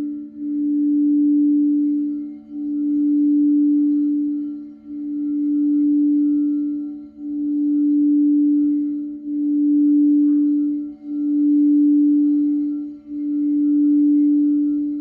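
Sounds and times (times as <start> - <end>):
singing bowls ringing: 0.0 - 15.0.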